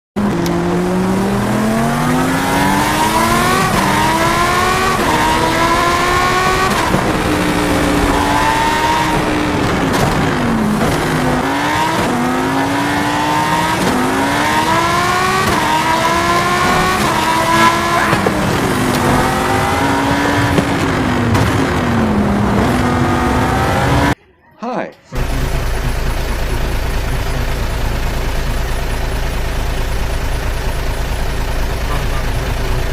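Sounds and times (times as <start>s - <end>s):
racing car engine revving: 0.2s - 24.2s.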